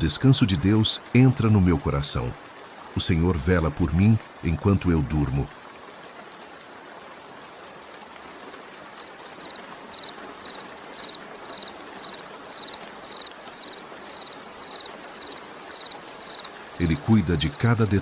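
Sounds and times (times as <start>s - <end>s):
steady rain: 0.0s - 18.0s
cricket chirping: 9.0s - 16.6s.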